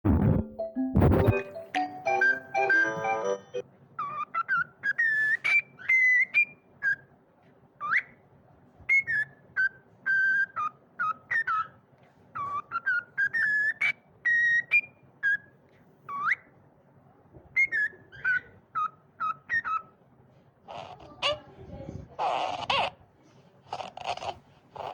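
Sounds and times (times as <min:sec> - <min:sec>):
bird whistling: 0:02.0 - 0:03.4, 0:04.0 - 0:07.1, 0:12.4 - 0:15.5, 0:17.6 - 0:19.9.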